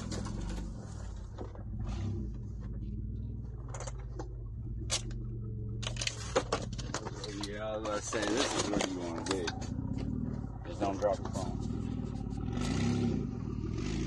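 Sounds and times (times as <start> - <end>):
car engine hum: 0.0 - 14.0.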